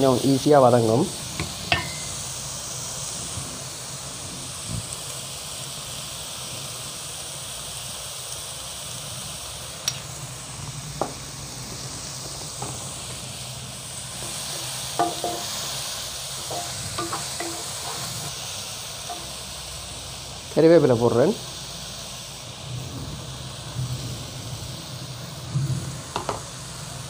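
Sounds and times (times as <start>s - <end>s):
vegetables sizzling in oil: 0.0s - 27.0s
wooden spatula knocking against pan: 15.0s - 15.6s, 16.5s - 17.7s, 26.2s - 26.4s.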